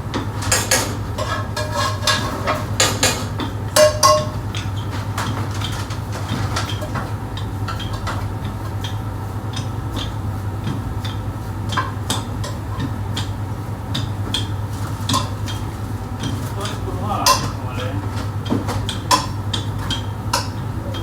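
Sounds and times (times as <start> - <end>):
pots and pans clinking: 0.1 - 9.0, 11.6 - 13.3, 13.9 - 21.0
steady low hum: 6.9 - 21.0.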